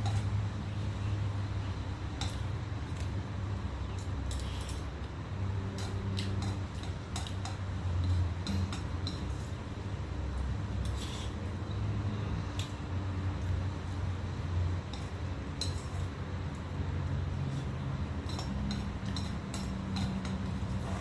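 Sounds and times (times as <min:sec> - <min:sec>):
metal utensils clinking on dishes: 0:18.2 - 0:21.0.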